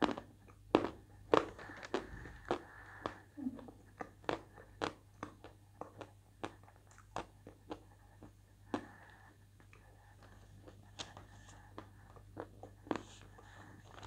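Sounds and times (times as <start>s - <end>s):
person chewing crunchy food: 0.0s - 14.0s.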